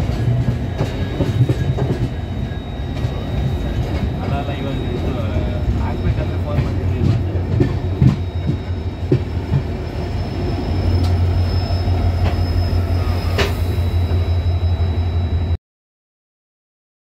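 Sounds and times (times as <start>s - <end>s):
train rumbling on rails: 0.0s - 15.6s
high-pitched wheel squeal: 0.6s - 15.6s.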